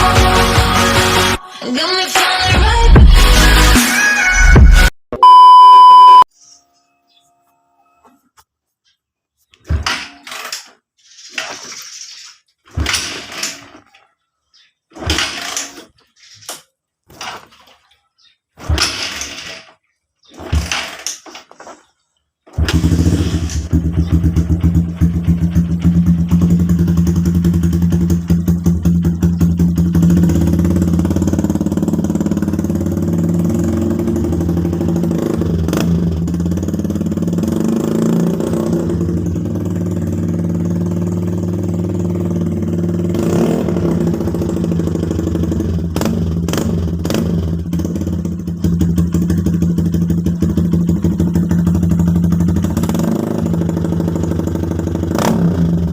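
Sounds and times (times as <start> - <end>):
motorcycle engine idling with throttle blips: 22.6 - 37.4, 43.8 - 55.1.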